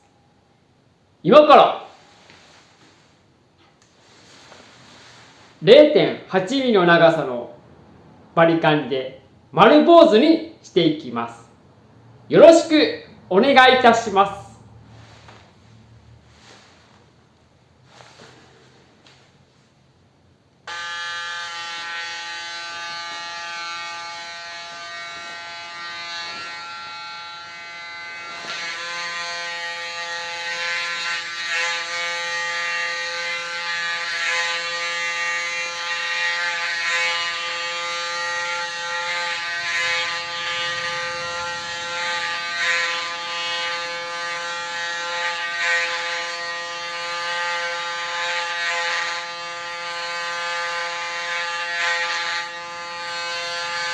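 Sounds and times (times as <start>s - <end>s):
electric hair clipper buzzing: 20.7s - 53.9s.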